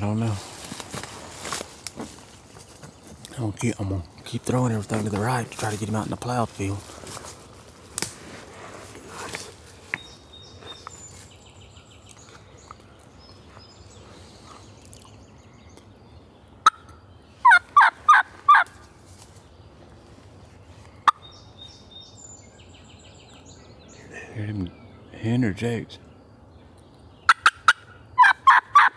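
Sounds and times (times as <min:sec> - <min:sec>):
turkey call yelps: 0:16.6 - 0:18.7, 0:27.3 - 0:28.9.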